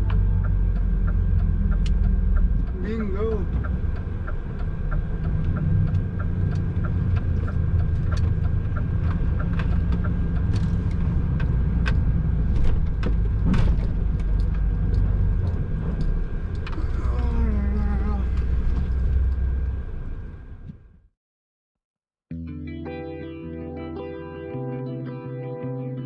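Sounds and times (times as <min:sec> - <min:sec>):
even ticking: 0:00.0 - 0:12.1
truck diesel engine running: 0:00.0 - 0:20.6.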